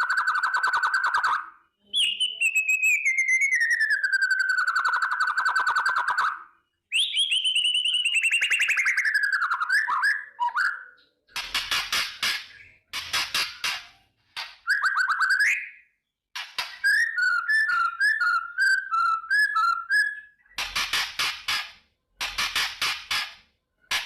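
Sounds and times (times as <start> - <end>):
bird trilling clicks: 11.0 - 15.0, 16.3 - 18.3, 20.4 - 24.0.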